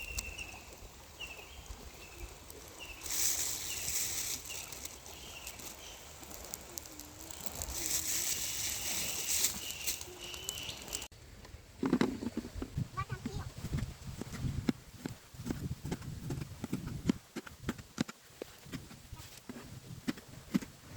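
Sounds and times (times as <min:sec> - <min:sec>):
small bird chirping: 0:00.0 - 0:11.1
hissing noise: 0:02.2 - 0:11.1.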